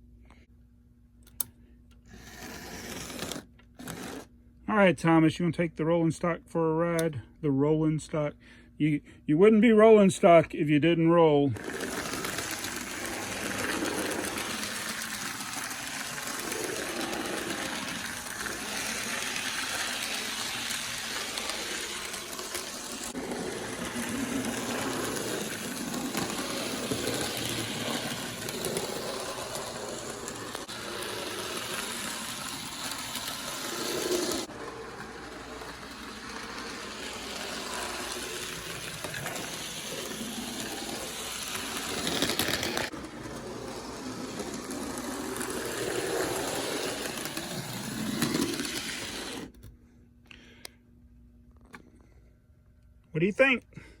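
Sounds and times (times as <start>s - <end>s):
model train motor whirring: 2.1s - 4.3s, 11.6s - 49.7s
wheels rattling on rails: 11.6s - 49.5s.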